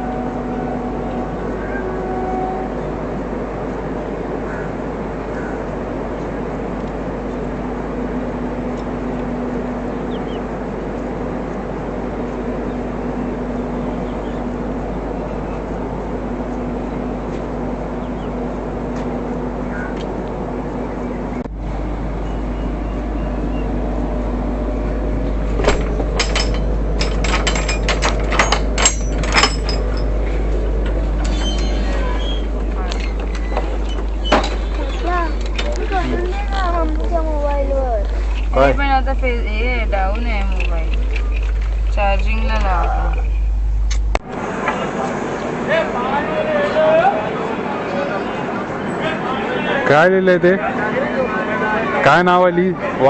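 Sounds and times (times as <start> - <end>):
train running noise from inside: 0.0 - 53.0
sharp clicks and knocks: 25.6 - 30.1.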